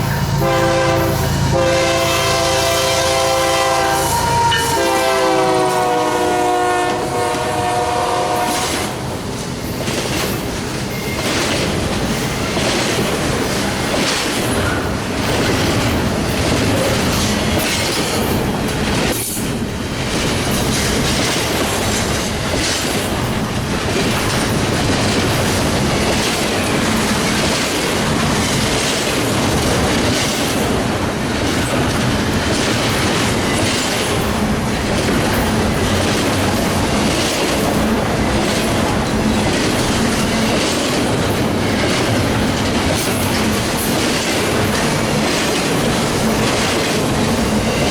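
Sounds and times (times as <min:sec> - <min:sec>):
train horn chord: 0:00.0 - 0:09.0
train wheels clicking over rail joints: 0:00.0 - 0:47.9.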